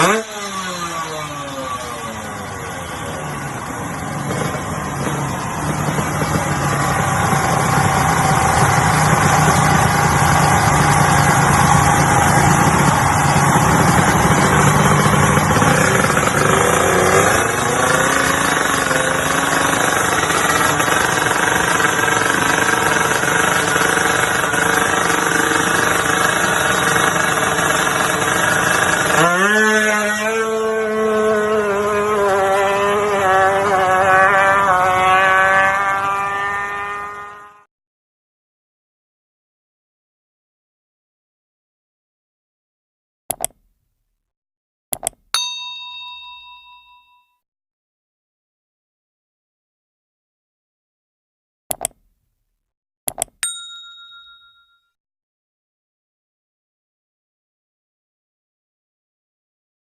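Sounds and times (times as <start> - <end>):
motorcycle engine revving: 0.0 - 37.7.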